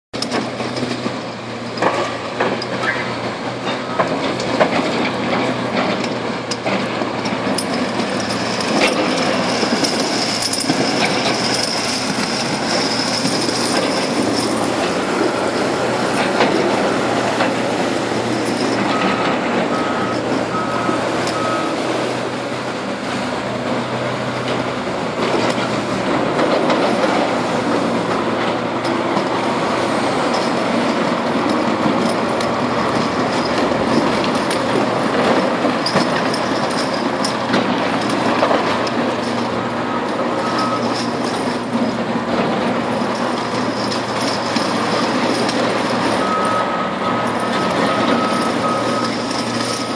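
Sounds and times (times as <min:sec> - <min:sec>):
heavy machine engine and clanking: 0:00.2 - 0:49.9
reversing alarm beeping: 0:18.4 - 0:21.9, 0:39.9 - 0:41.0, 0:46.1 - 0:49.9.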